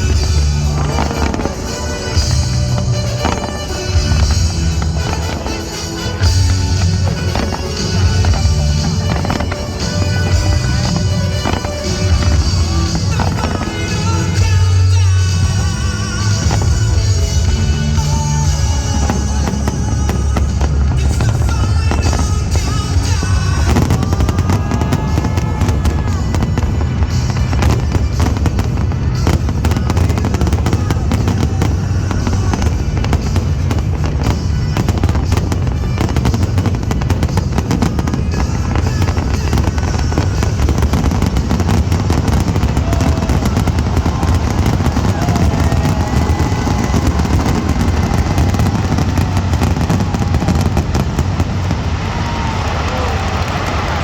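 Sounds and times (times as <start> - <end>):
fireworks bangs and crackles: 0.0 - 54.0
music: 0.0 - 54.0
low rumble: 6.1 - 54.0.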